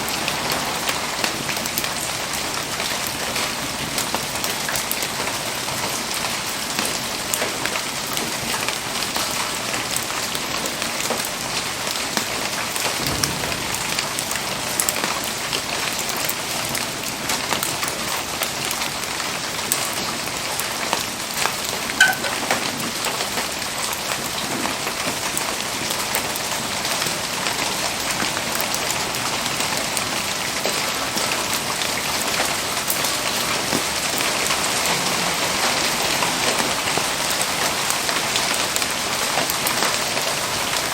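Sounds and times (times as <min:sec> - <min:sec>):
steady rain falling: 0:00.0 - 0:40.9
sharp pop: 0:13.0 - 0:15.2.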